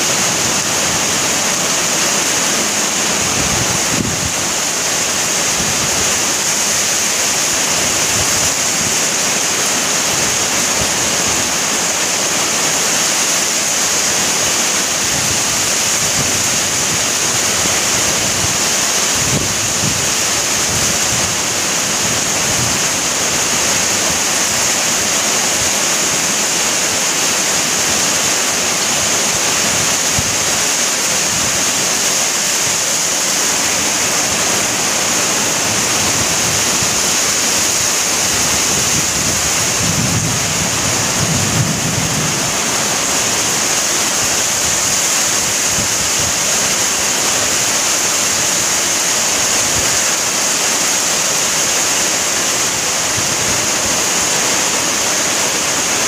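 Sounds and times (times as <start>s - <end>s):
heavy rain hiss: 0.0s - 56.0s.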